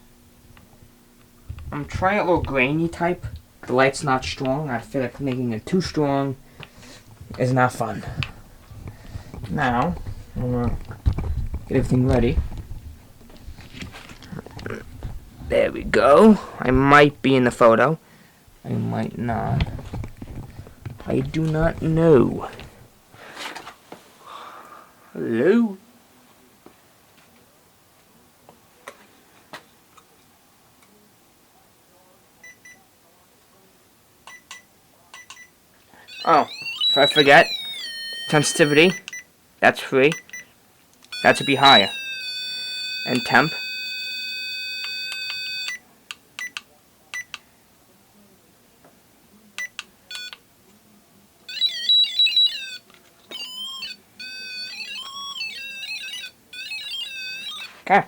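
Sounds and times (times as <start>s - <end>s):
warbling electronic alert melody: 36.1s - 39.0s, 41.2s - 44.2s, 51.5s - 57.7s
electronic device beeping: 36.1s - 39.2s, 41.1s - 45.8s, 51.5s - 57.8s
short electronic beeps: 36.1s - 39.2s.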